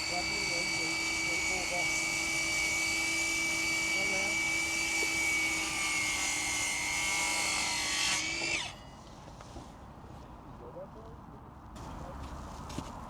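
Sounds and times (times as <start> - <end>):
power tool motor whining: 0.0 - 9.1.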